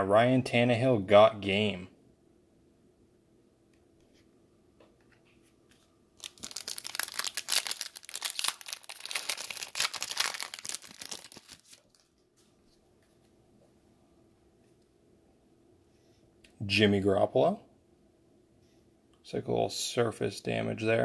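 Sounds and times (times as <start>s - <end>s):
wrapper tearing and crinkling: 6.2s - 12.2s.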